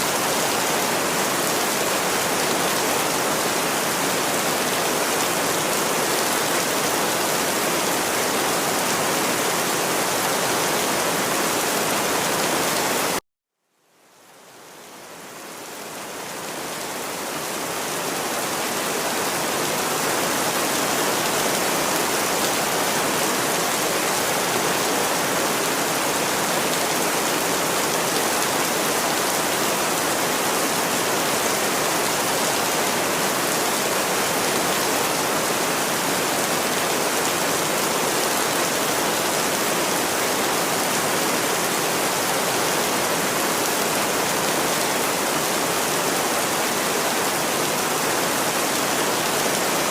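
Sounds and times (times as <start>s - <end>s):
dense rainfall hiss: 13.8s - 49.9s.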